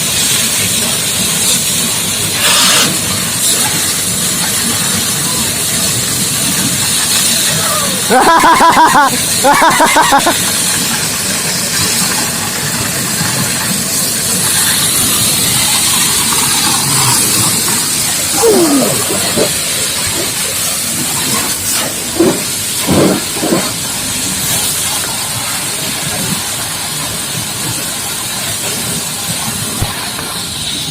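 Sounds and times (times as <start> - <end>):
pressure washer jet hissing: 2.3 - 3.6
person shouting: 7.5 - 9.2, 18.3 - 19.5.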